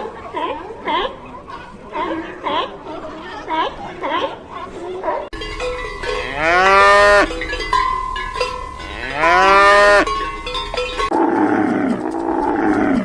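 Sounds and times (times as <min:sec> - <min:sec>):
cowbells clanking: 0:05.3 - 0:11.2
cow mooing: 0:06.1 - 0:07.3, 0:08.8 - 0:10.1.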